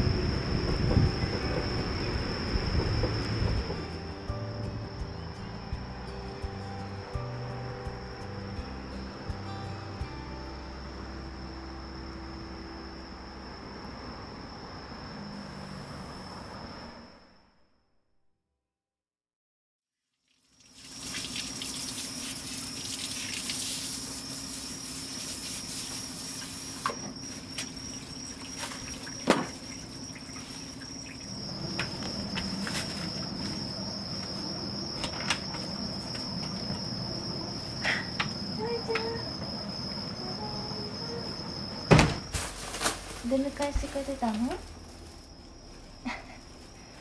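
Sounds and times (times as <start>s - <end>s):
cricket trilling: 0.0s - 17.9s, 20.4s - 47.0s.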